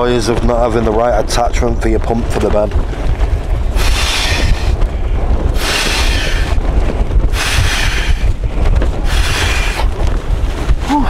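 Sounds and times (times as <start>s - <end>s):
wind buffeting tent and microphone: 0.0s - 11.0s
puffs of air into sleeping mat: 3.7s - 4.8s, 5.6s - 6.6s, 7.3s - 8.4s, 9.0s - 10.0s.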